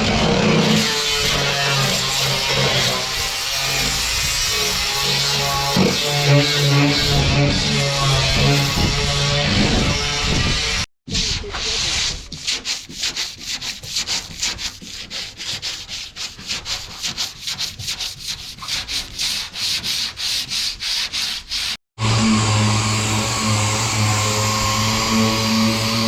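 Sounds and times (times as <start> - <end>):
sandpaper rasping on metal: 11.1 - 21.8.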